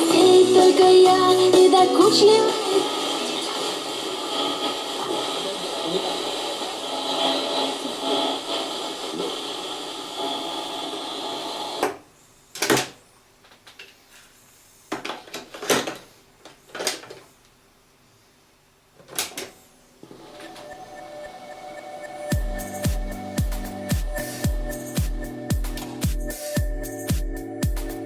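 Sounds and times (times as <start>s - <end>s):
dense noisy radio sound: 0.1s - 11.3s.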